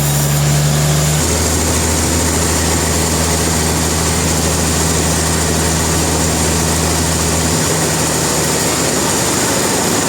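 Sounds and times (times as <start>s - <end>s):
low engine hum: 0.0s - 10.0s
sawmill machinery running: 0.0s - 10.0s.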